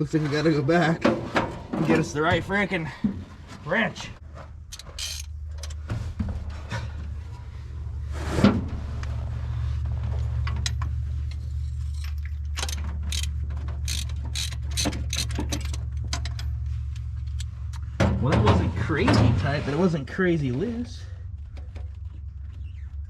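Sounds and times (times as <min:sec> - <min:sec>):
steady low hum: 0:00.0 - 0:23.0
socket wrench ratcheting: 0:04.7 - 0:05.7, 0:12.6 - 0:15.8.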